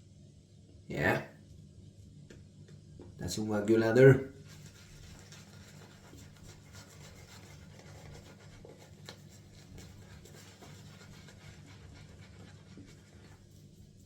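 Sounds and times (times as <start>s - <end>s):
shaving brush squishing lather: 3.2s - 14.0s.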